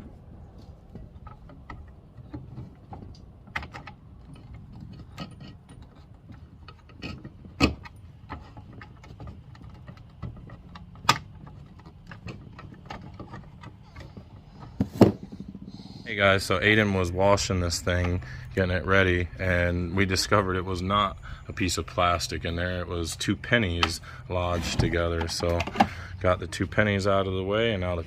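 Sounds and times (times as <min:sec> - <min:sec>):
hand tools clicking and tapping: 0:00.8 - 0:15.7, 0:24.8 - 0:26.2.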